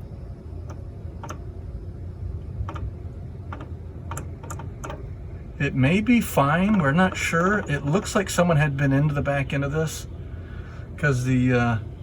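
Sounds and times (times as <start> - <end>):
low steady hum: 0.0 - 12.0
sharp ticking from axle: 3.5 - 8.5.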